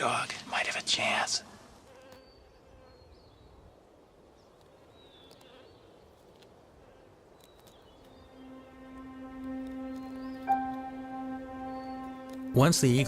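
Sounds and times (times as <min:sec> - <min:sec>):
faint high chirps and clicks: 0:04.4 - 0:06.6, 0:07.3 - 0:12.5
low held music tone: 0:08.0 - 0:13.0.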